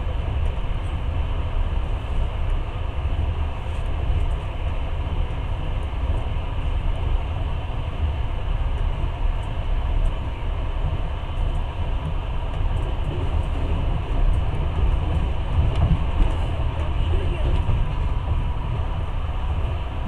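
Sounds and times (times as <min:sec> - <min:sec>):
train carriage rumbling on rails: 0:00.0 - 0:20.0.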